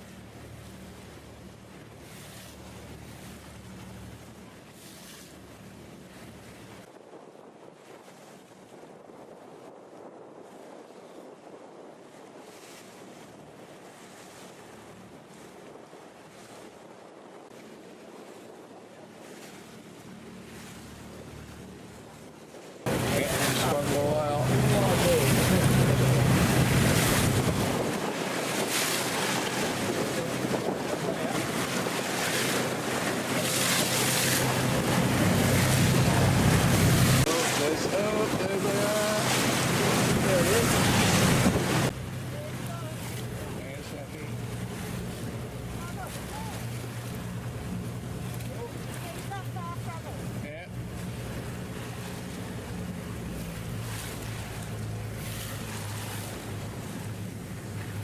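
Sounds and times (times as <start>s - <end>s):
wind and water rushing past boat: 0.0s - 58.0s
wind buffeting microphone: 6.0s - 20.2s, 21.2s - 58.0s
low engine drone: 22.9s - 58.0s
wind noise: 24.5s - 42.0s.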